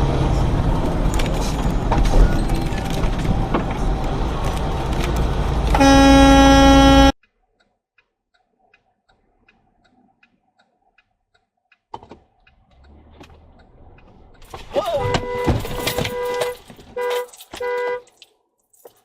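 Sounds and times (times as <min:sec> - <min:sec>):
traffic noise: 0:00.0 - 0:07.2, 0:11.9 - 0:18.4
car horn honking: 0:05.7 - 0:07.2, 0:14.8 - 0:18.1.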